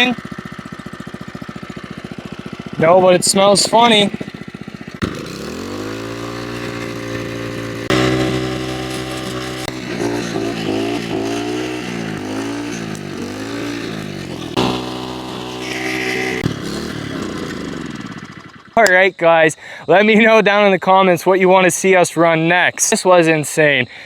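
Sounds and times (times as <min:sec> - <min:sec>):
small engine revving: 0:00.0 - 0:18.9.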